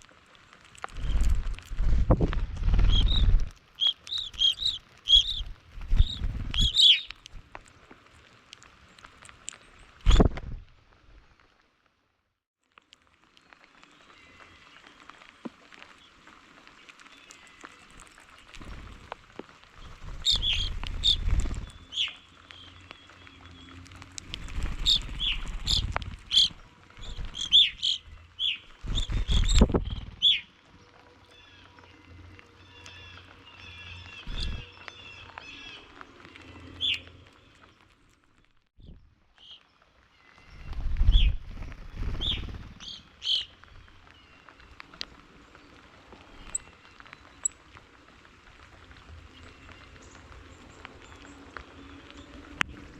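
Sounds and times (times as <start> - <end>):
small songbirds chirping: 0.6 - 7.9, 19.8 - 47.8, 48.5 - 52.9
low rumble: 1.0 - 3.6.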